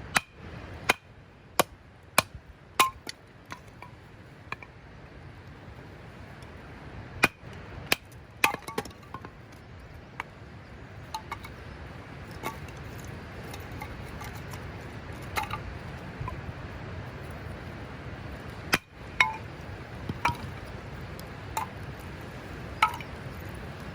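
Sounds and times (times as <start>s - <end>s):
low background rumble: 0.0s - 23.9s
hard objects clinking and knocking: 20.1s - 23.9s.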